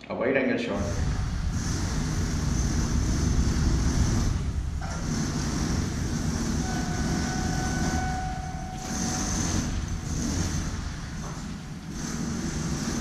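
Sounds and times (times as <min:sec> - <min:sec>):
train rumbling with rushing hiss: 0:00.8 - 0:13.0
steady high tone: 0:02.2 - 0:10.7.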